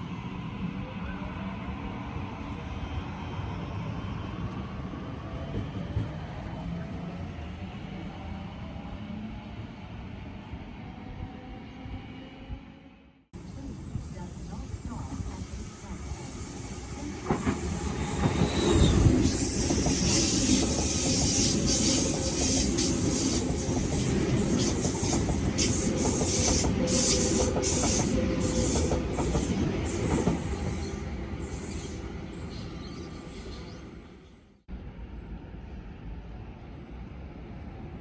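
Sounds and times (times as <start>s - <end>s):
train wheel and rail noise: 0.0s - 12.8s, 13.4s - 38.0s
high wheel squeal: 13.4s - 23.6s, 24.5s - 34.5s.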